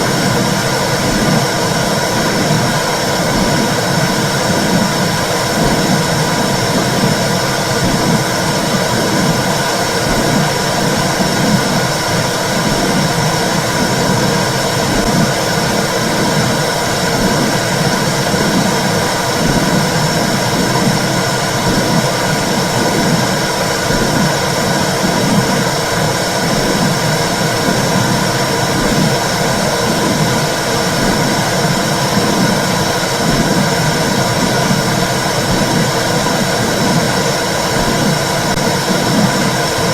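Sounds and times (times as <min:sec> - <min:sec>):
low heartbeat pulse: 0:00.0 - 0:39.6.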